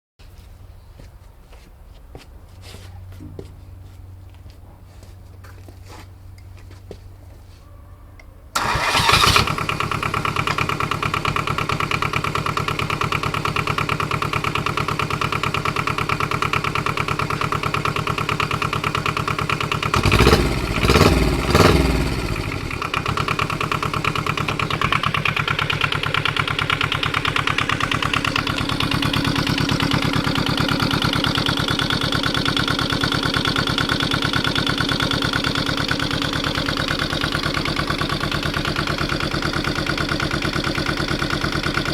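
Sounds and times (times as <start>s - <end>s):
diesel engine starting and revving: 8.5s - 41.9s.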